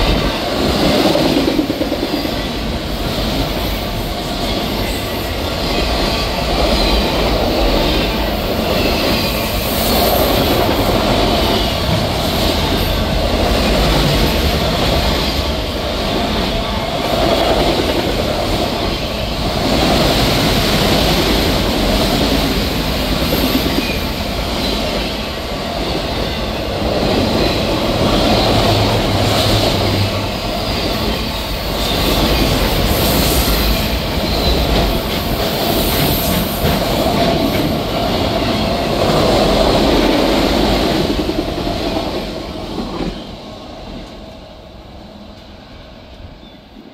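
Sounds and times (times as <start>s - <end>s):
freight train wheels clattering: 0.0s - 43.2s.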